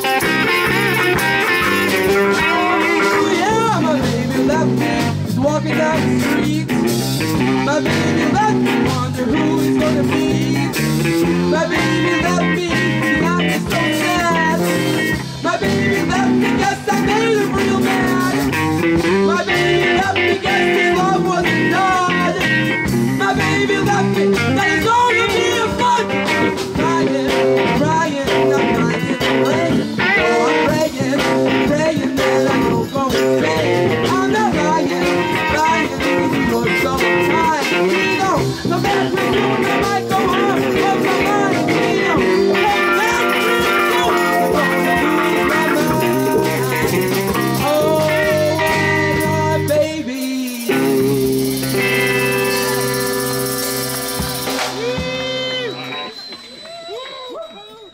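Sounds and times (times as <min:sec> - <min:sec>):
bass line: 0:00.0 - 0:50.0, 0:50.7 - 0:56.2
blues guitar: 0:00.0 - 0:57.7.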